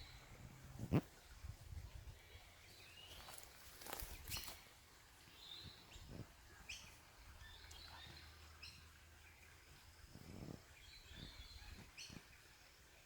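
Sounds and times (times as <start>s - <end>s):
faint bird chirps: 5.3s - 12.4s.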